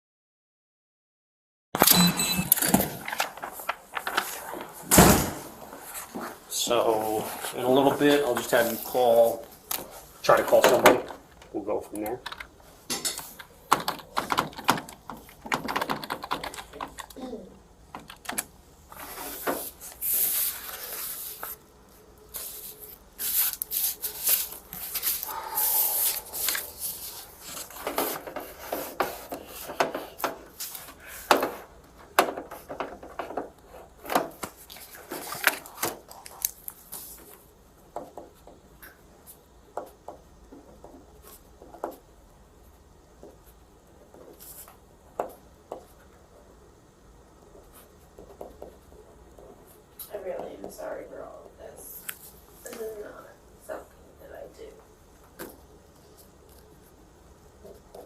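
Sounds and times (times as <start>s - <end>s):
rustling handling noises: 2.6s - 4.9s, 5.5s - 17.2s, 18.3s - 37.5s.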